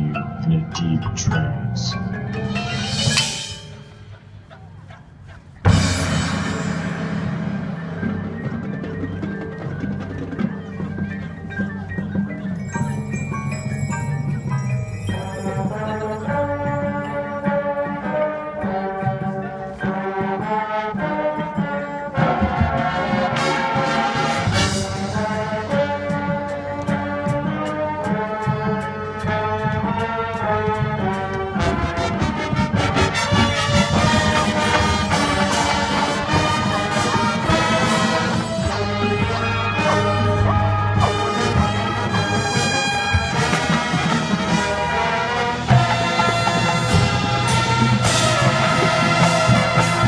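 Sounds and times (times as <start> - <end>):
marching band playing: 0.0 - 50.0
brass sustained chords: 27.6 - 50.0.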